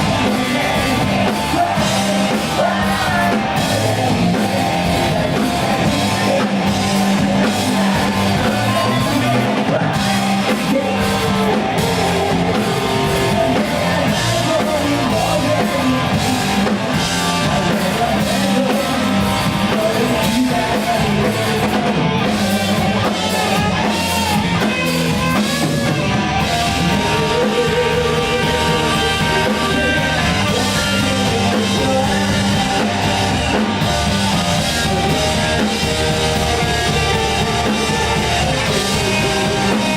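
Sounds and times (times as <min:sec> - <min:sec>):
drum kit: 0:00.0 - 0:39.9
electric guitar: 0:00.0 - 0:39.9
live rock band: 0:00.0 - 0:39.9
person singing: 0:00.0 - 0:39.9.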